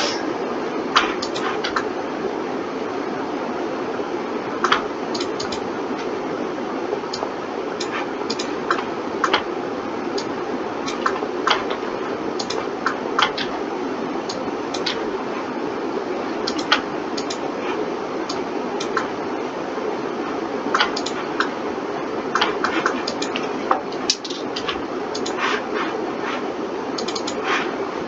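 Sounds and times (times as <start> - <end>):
steady hum: 0.0 - 28.0
mouse and keyboard clicking: 1.0 - 1.8, 4.6 - 5.6, 7.1 - 9.5, 10.9 - 11.8, 12.4 - 13.5, 14.3 - 15.0, 16.4 - 17.4, 18.3 - 19.1, 20.7 - 21.5, 22.4 - 25.6, 27.0 - 27.7.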